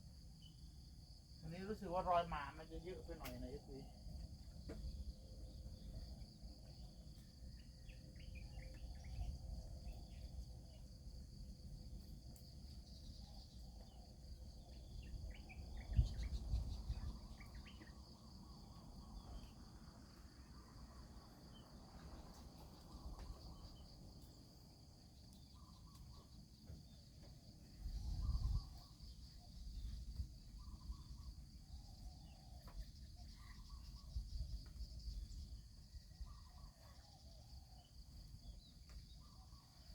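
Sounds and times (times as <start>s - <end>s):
insects chirring: 0.0s - 39.9s
faint ticks: 3.2s - 3.5s.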